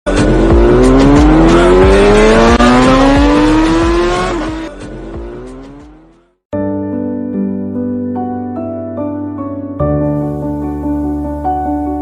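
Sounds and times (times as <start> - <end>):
motorcycle engine accelerating: 0.1 - 6.1.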